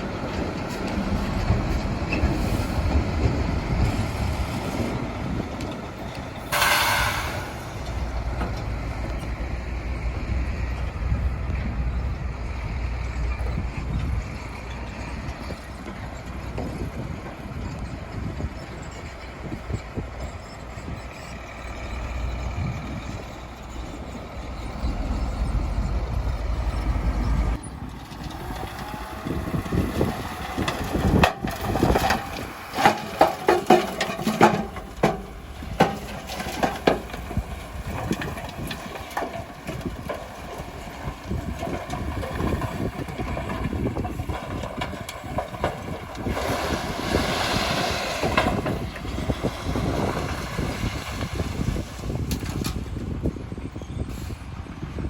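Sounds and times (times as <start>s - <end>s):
diesel machinery rumbling: 0.0s - 55.0s
sharp metal knocks and clanks: 30.7s - 40.3s.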